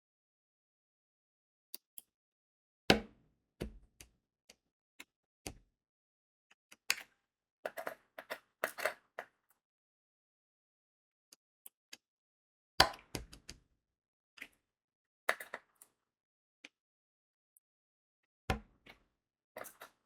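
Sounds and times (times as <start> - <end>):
small plastic clicks and taps: 6.7 - 9.3, 11.6 - 12.1, 12.8 - 13.7, 15.3 - 16.0.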